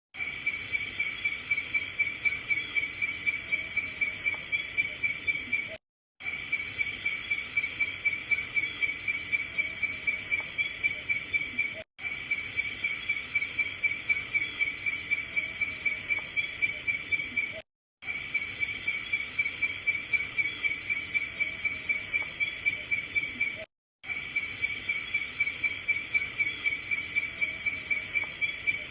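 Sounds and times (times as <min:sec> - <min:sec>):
high insect drone: 0:00.2 - 0:28.9.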